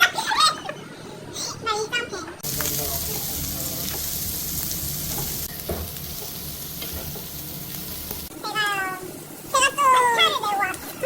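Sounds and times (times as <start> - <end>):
food sizzling: 2.4 - 11.0.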